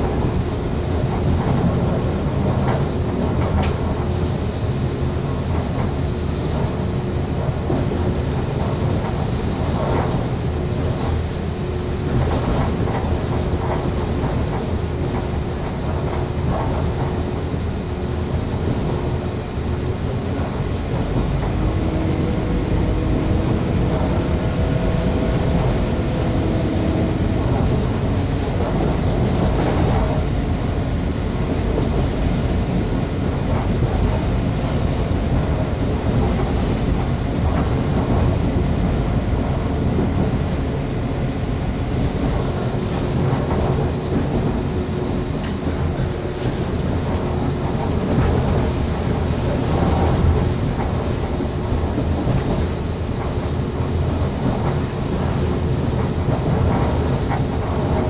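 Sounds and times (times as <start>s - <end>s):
train wheels on rail: 0.0s - 58.0s
faint humming tones: 16.7s - 48.8s.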